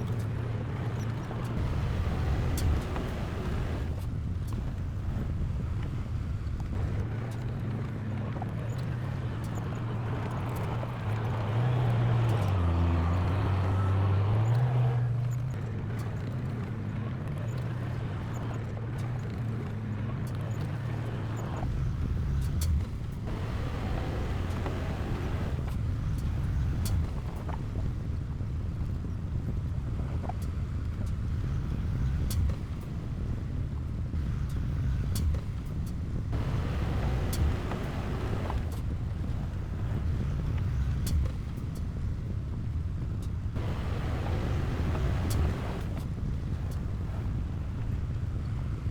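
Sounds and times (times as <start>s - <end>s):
diesel machinery engine running: 0.8s - 7.7s, 21.6s - 30.2s, 31.0s - 48.9s.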